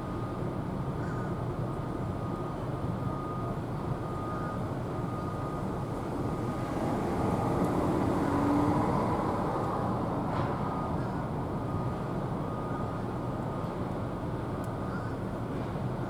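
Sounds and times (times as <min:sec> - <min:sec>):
vehicle passing by: 0:06.5 - 0:10.2.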